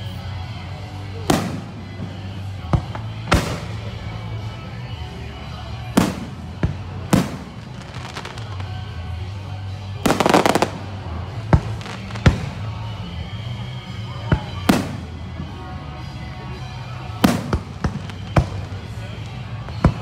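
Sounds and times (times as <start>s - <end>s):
crackling firework reports: 6.0s - 9.0s, 10.0s - 12.7s.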